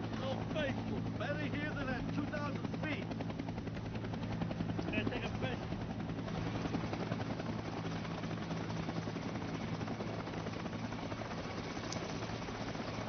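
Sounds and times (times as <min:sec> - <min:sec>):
helicopter rotor and turbine: 0:00.0 - 0:13.0.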